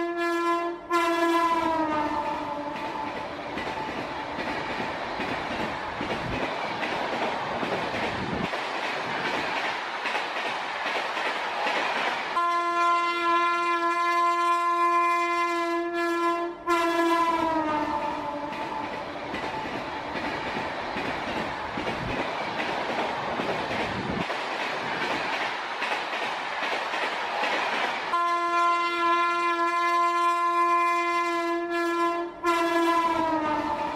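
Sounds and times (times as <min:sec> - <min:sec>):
train horn blast: 0:00.0 - 0:03.1, 0:12.4 - 0:18.8, 0:28.1 - 0:33.9
train clattering on rails: 0:01.3 - 0:13.4, 0:16.9 - 0:30.1.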